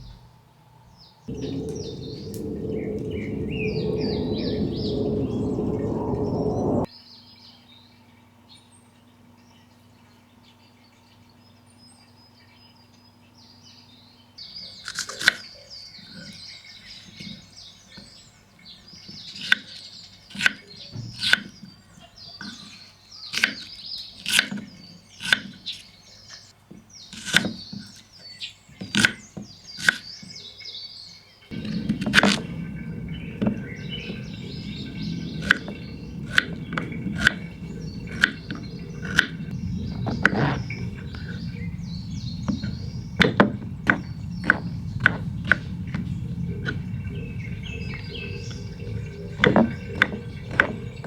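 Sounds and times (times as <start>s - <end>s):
birds chirping: 1.3s - 6.9s, 31.5s - 51.0s
sharp wooden knocks: 42.4s - 46.8s, 49.3s - 51.0s.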